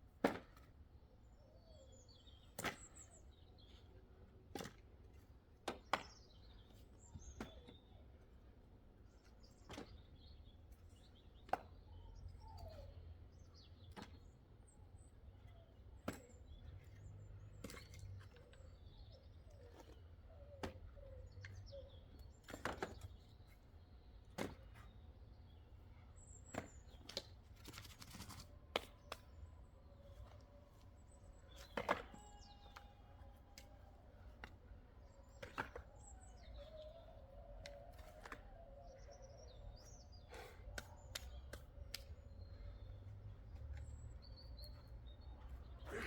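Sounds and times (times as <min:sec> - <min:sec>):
axe chopping wood: 0:00.2 - 0:00.7
birds chirping: 0:09.0 - 0:46.0.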